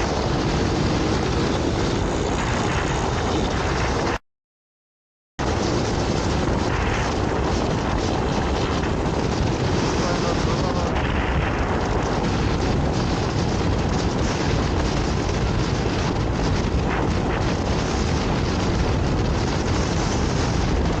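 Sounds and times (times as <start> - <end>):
wind noise: 0.0 - 4.2, 5.4 - 21.0.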